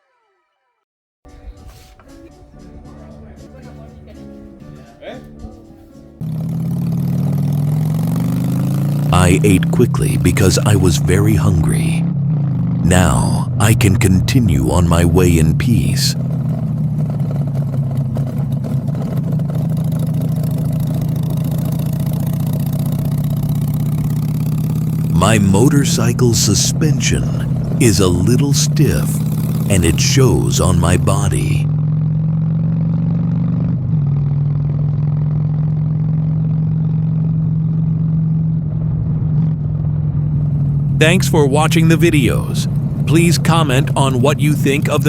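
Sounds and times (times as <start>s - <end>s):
motorcycle engine running: 5.3s - 12.8s, 16.1s - 30.0s, 30.8s - 45.0s.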